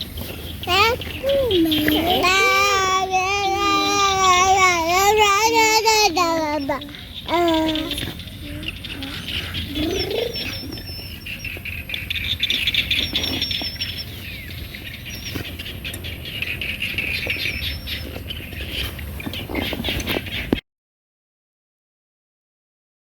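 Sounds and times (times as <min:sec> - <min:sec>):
birds chirping: 0:00.0 - 0:20.6
busy outdoor chorus: 0:00.1 - 0:12.0.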